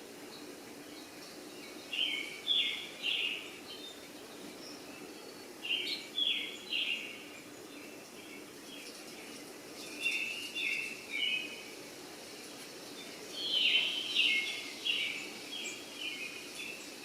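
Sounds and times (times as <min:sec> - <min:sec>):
bird calling: 0:13.4 - 0:16.4.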